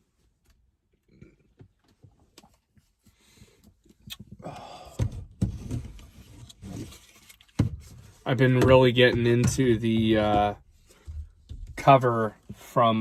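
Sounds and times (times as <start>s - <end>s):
clicks and rustling in a car: 5.0s - 12.6s
scuffle with dull thumps: 5.0s - 12.7s.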